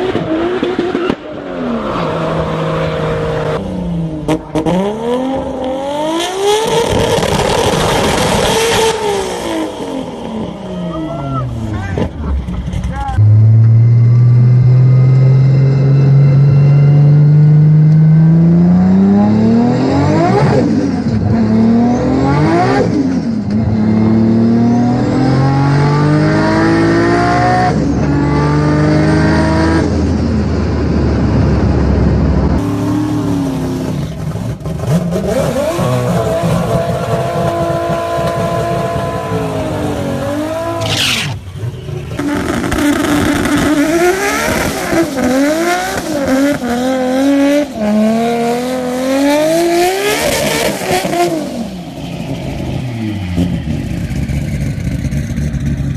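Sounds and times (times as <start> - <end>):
car engine accelerating hard: 0.0 - 55.9
car engine revving: 0.0 - 55.9
gear upshifts: 35.2 - 46.3.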